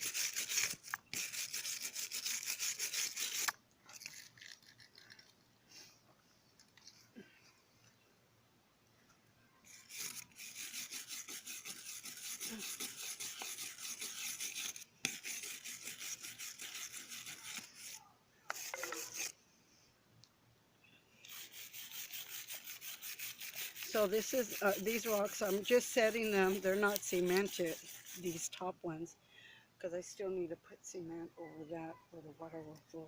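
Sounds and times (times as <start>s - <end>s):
wire brush scrubbing rock: 0.0s - 5.3s, 9.7s - 19.4s, 21.2s - 28.7s.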